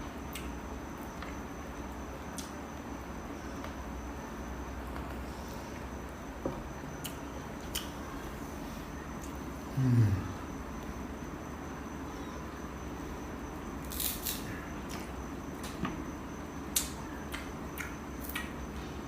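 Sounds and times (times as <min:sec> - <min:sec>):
crunchy chewing of mango: 0:00.0 - 0:09.8, 0:13.6 - 0:19.0
steady background noise: 0:00.0 - 0:19.0.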